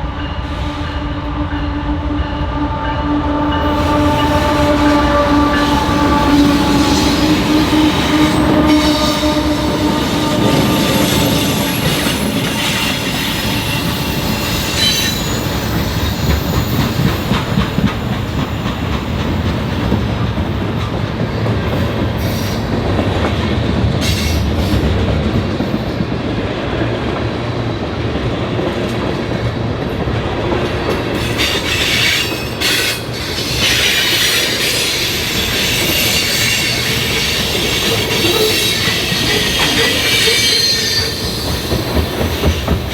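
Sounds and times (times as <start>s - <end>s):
train wheels rumbling on rail: 0.0s - 42.9s
wheel squeal: 10.7s - 17.0s, 31.2s - 42.0s.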